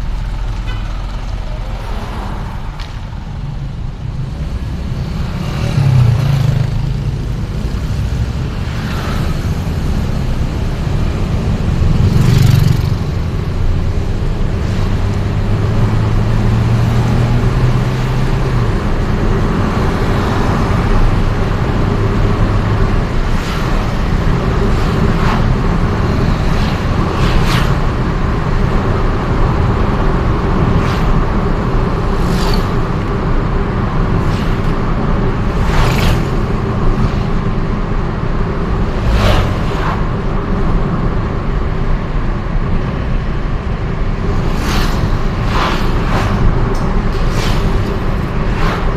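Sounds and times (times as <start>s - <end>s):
vehicle road and engine noise: 0.0s - 48.9s
vehicles passing: 0.0s - 48.9s.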